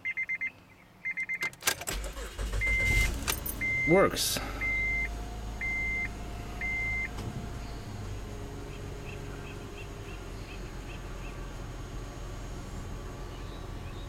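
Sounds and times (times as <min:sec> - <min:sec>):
car engine idling: 0:01.8 - 0:14.0
short electronic beep: 0:02.6 - 0:07.1.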